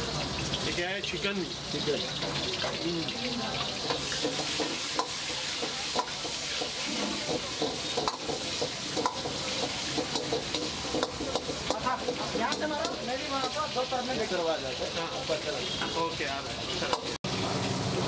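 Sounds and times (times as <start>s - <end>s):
chicken sizzling in hot oil: 0.0s - 18.0s.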